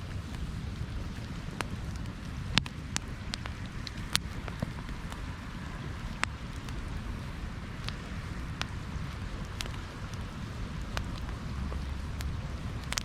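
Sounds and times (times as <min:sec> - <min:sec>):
flames rumbling and hissing: 0:00.0 - 0:13.0
wood crackling and popping: 0:00.0 - 0:13.0.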